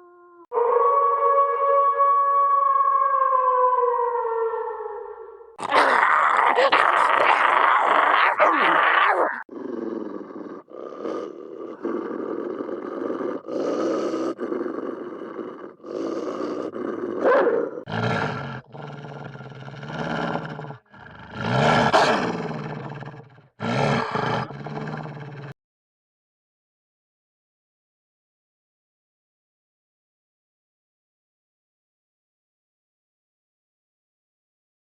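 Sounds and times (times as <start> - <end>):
cartoon animal roars and growls: 5.6 - 25.6.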